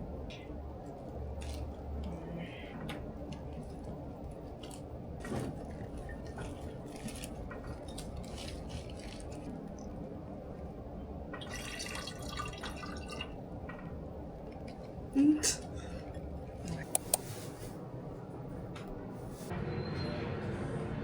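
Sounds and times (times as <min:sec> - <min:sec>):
liquid dripping and trickling: 0:11.3 - 0:13.4.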